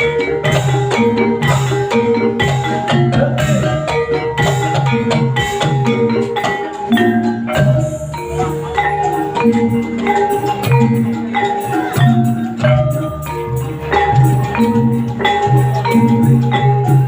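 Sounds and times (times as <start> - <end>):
bronze metallophones ringing: 0.0 - 17.0
sharp percussive strikes: 0.0 - 17.0.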